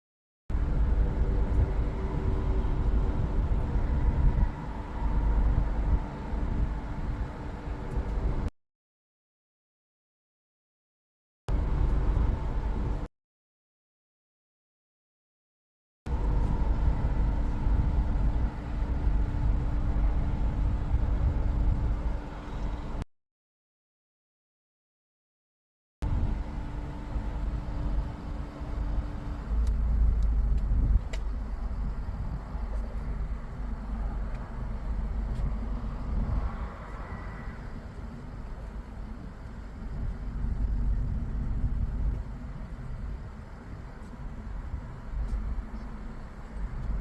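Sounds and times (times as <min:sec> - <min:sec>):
vehicle running low rumble: 0:00.5 - 0:08.5, 0:11.5 - 0:13.1, 0:16.1 - 0:23.0, 0:26.0 - 0:47.0
faint mechanical hum: 0:26.1 - 0:47.0.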